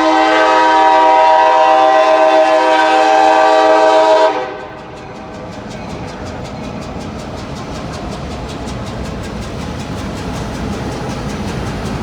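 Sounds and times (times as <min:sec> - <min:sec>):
locomotive air horn blast: 0:00.0 - 0:04.8
train rumble with rapid clicking: 0:00.0 - 0:12.0.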